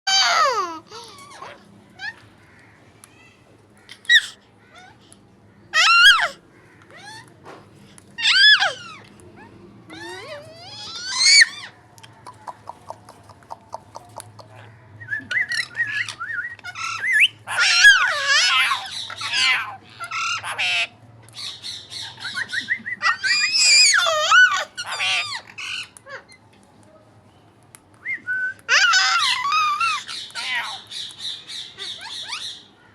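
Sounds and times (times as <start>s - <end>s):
parrot squawking and warbling: 0.1s - 2.2s, 3.9s - 5.0s, 5.7s - 7.3s, 8.2s - 11.8s, 15.3s - 26.4s, 28.7s - 32.6s.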